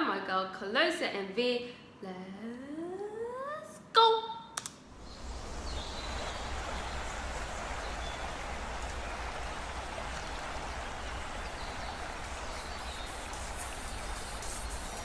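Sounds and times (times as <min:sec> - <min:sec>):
rain-like rushing hiss: 0:05.0 - 0:15.0.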